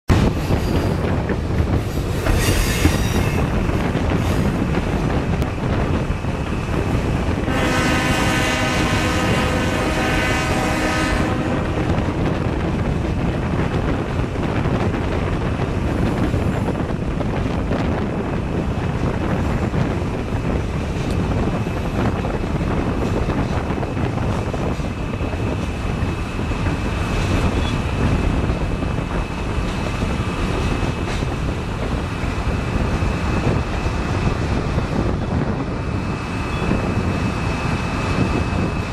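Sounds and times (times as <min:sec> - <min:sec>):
train rumbling: 0:00.0 - 0:38.9
wind noise: 0:00.1 - 0:38.9
locomotive air horn blast: 0:07.4 - 0:12.0.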